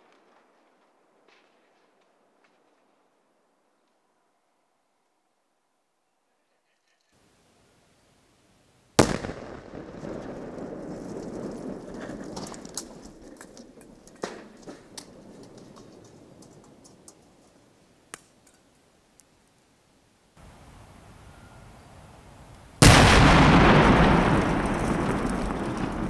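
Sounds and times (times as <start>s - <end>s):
sharp cracks and pops: 0.0s - 3.0s, 9.0s - 19.6s, 22.8s - 26.0s
explosion rumble: 9.0s - 16.5s, 22.8s - 26.0s
explosion blast: 22.8s - 26.0s.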